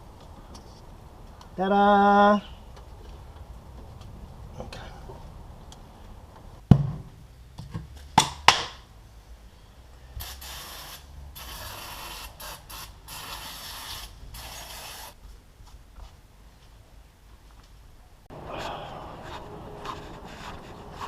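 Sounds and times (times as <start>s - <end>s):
hissing spray bursts: 10.2s - 15.2s.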